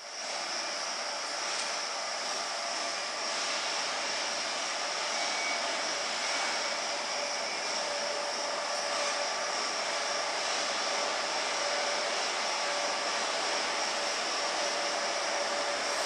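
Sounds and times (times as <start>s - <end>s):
train motor and fan hiss: 0.0s - 16.0s
whining tones: 4.3s - 16.0s.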